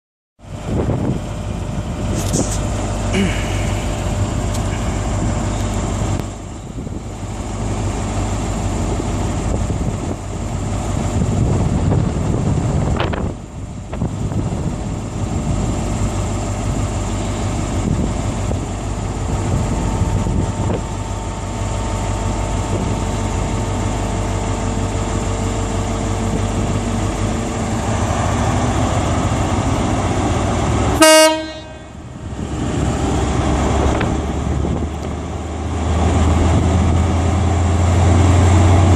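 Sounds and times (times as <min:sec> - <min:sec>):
train engine running: 0:00.4 - 0:38.9
train horn toot: 0:31.0 - 0:32.0.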